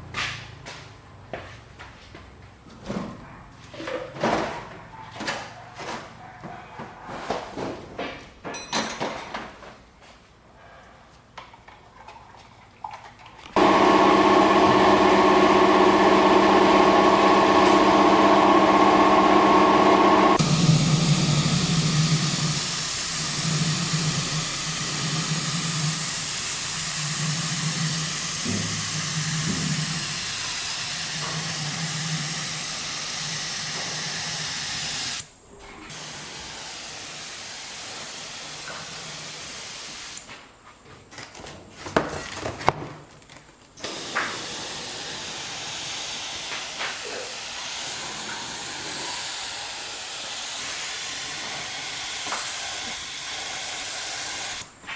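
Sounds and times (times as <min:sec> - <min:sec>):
spraying hiss: 0:13.6 - 0:35.2, 0:35.9 - 0:40.2, 0:43.9 - 0:54.7.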